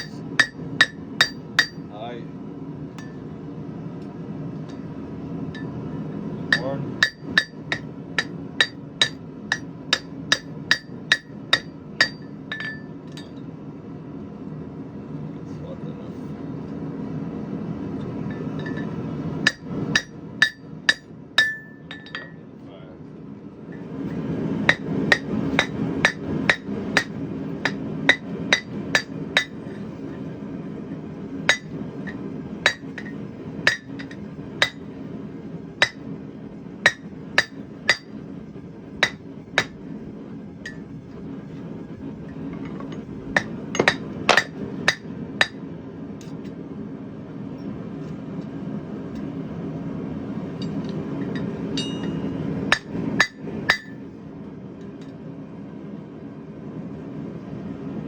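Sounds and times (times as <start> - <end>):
hammer striking steel on anvil: 0.0 - 1.9, 6.5 - 13.4, 18.3 - 22.4, 24.7 - 29.8, 31.5 - 34.9, 35.8 - 36.0, 36.8 - 38.2, 39.0 - 39.8, 43.4 - 45.6, 50.6 - 54.0
steady low hum: 0.0 - 58.0.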